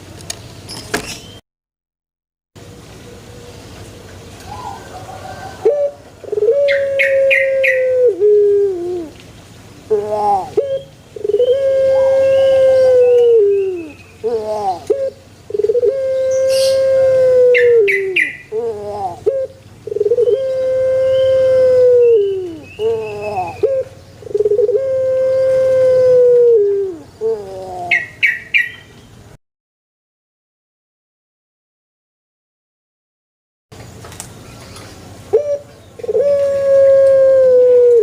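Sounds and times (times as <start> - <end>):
dove cooing: 4.4 - 9.2, 9.9 - 28.4, 35.3 - 38.0.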